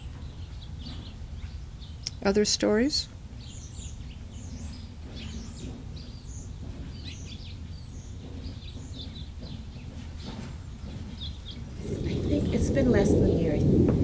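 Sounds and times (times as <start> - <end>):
small birds chirping: 0.0 - 13.8
low background rumble: 0.0 - 14.0.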